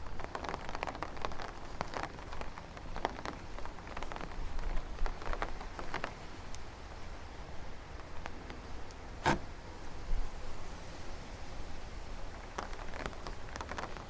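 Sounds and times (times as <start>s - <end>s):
raindrops ticking close by: 0.0s - 9.0s, 12.0s - 14.0s
wind rumble on microphone: 0.0s - 9.1s
steady rain hiss: 0.0s - 14.0s.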